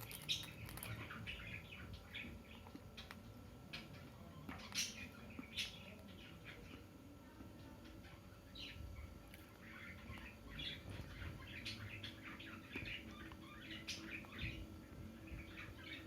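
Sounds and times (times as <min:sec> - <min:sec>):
parrot chirping: 0:08.6 - 0:16.0.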